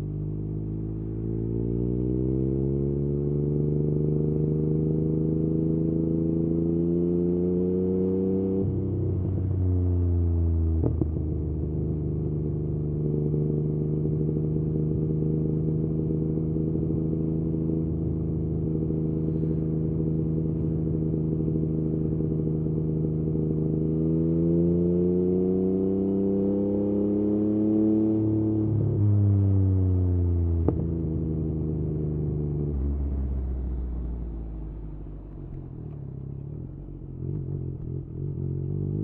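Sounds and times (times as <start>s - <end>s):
motorcycle engine running: 7.7s - 25.8s, 29.7s - 39.0s.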